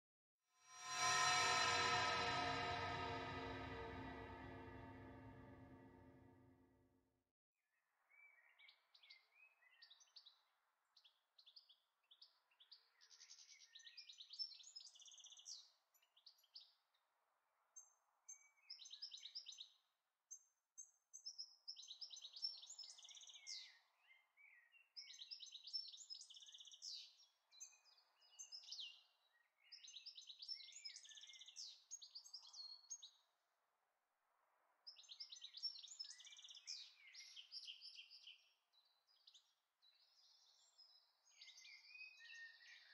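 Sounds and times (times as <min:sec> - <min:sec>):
faint birdsong chirps and trills: 0:20.8 - 0:33.3, 0:34.9 - 0:42.9.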